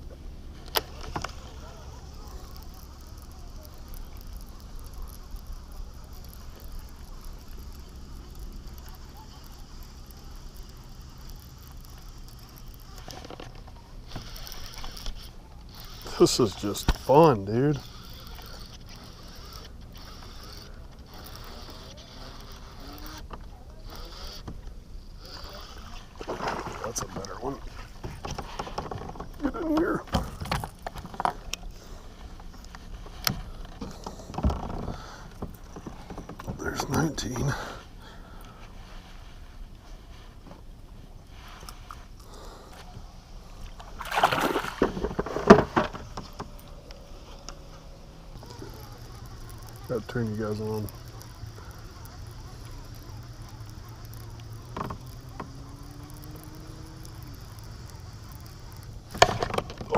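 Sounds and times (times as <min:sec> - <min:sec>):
fishing reel cranking: 0:00.6 - 0:39.2, 0:43.5 - 0:59.9
water splashing against kayak: 0:25.2 - 0:40.6, 0:41.6 - 0:47.4, 0:56.4 - 0:59.9.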